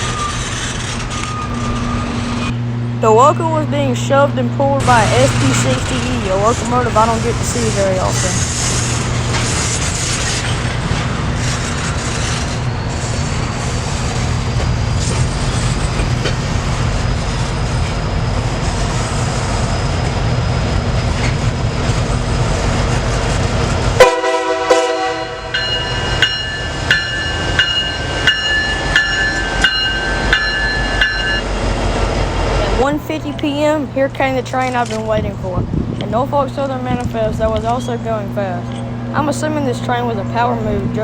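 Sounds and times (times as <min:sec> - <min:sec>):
diesel locomotive rumbling: 0:00.0 - 0:41.0
train horn blast: 0:24.0 - 0:26.0
bell ringing: 0:25.4 - 0:31.5.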